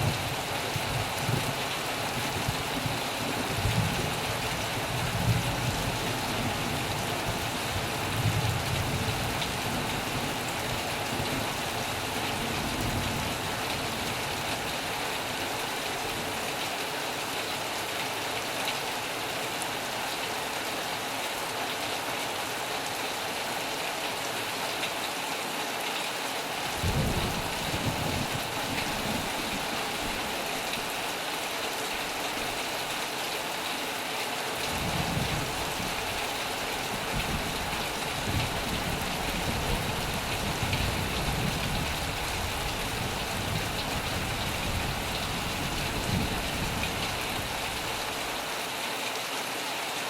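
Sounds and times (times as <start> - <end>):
heavy rain hissing: 0.0 - 49.2
thunder rumbling: 26.7 - 30.2.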